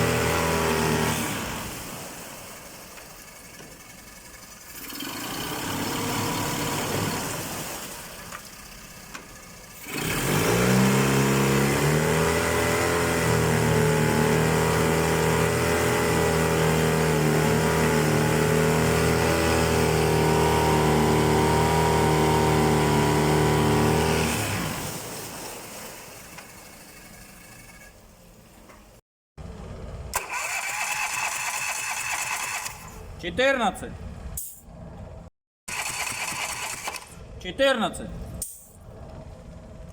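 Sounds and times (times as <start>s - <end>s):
outboard motor running: 0.0s - 27.6s.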